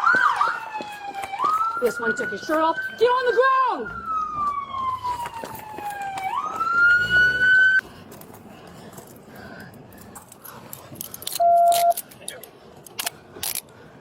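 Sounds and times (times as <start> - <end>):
police car siren: 0.0 - 7.8.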